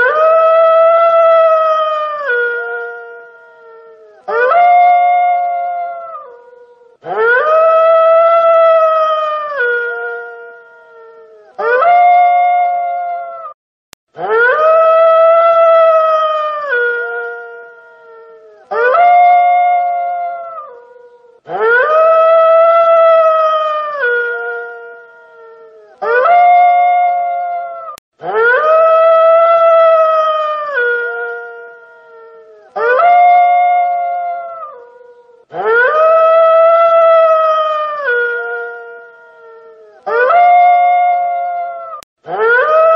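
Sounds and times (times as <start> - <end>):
wolf howling: 0.0 - 13.6, 14.2 - 42.9.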